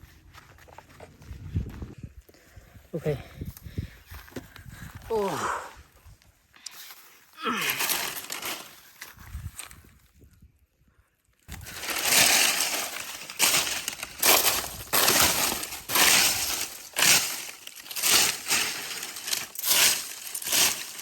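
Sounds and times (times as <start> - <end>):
dry leaves crunching: 7.5 - 9.7, 11.5 - 21.0.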